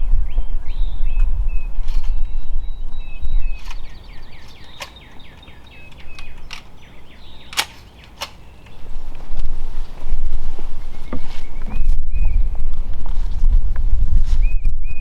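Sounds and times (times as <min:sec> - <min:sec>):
songbird singing: 0:00.0 - 0:09.4, 0:10.7 - 0:12.6
sharp clicks: 0:03.5 - 0:08.8.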